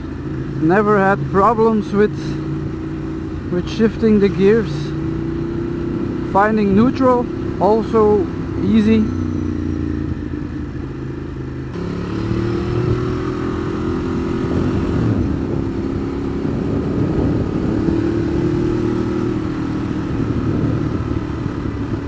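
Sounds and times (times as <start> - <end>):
wind rushing over microphone: 11.7 - 22.0.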